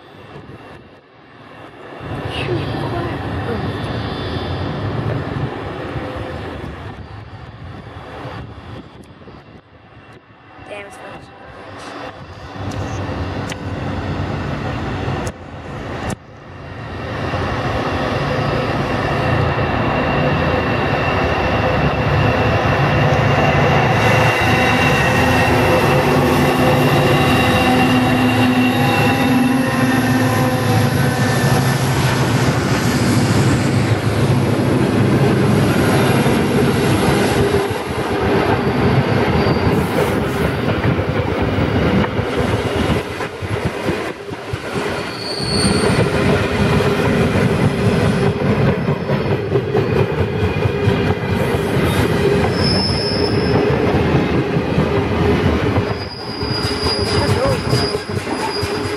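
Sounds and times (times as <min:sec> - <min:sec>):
locomotive engines droning: 0:00.0 - 0:39.7
wheel squeal: 0:39.3 - 0:40.0, 0:45.1 - 0:46.1, 0:51.9 - 0:53.7, 0:55.9 - 0:58.9
wagons clattering over track: 0:55.7 - 0:58.9.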